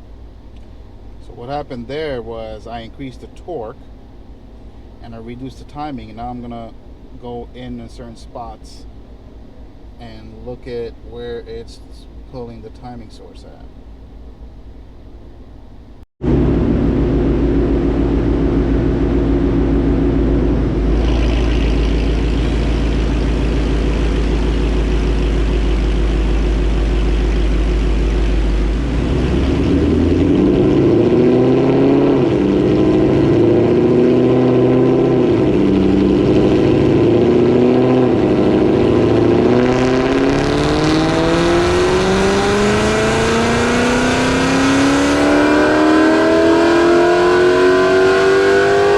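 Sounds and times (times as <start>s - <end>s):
car engine revving on dyno: 16.2s - 48.9s.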